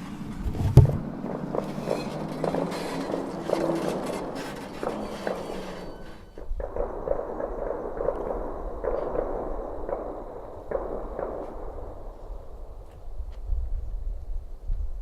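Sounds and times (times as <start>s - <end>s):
distant gunshots: 6.3s - 12.8s.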